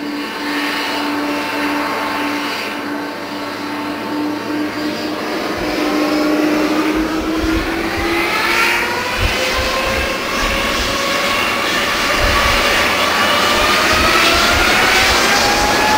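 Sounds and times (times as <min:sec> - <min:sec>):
jet engines running: 0:00.0 - 0:15.9
multi-tone whine rising in pitch: 0:00.0 - 0:15.9
low rumbling pulses: 0:04.8 - 0:15.9.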